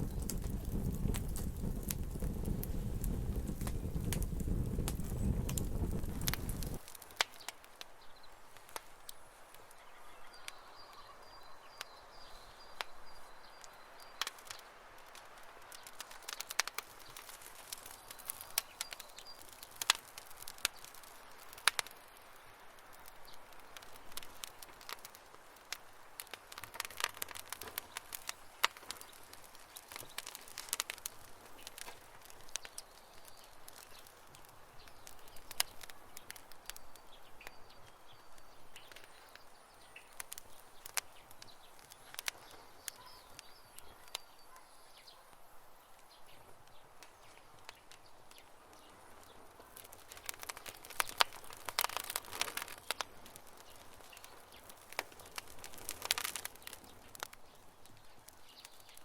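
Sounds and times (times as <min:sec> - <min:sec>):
campfire crackling and popping: 0:00.0 - 0:59.0
faint bird chirps: 0:09.0 - 0:14.7, 0:32.6 - 0:45.4.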